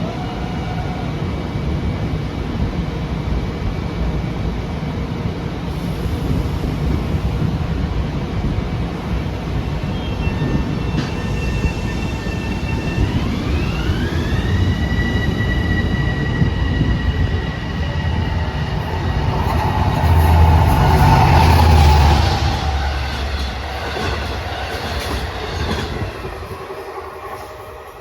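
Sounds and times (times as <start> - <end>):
train high whine: 0.0 - 28.0
train low rumble: 0.0 - 28.0.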